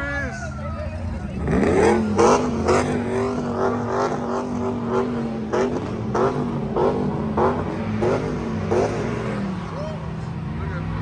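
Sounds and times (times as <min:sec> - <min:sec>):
vehicle engine at high revs: 0:01.3 - 0:09.8.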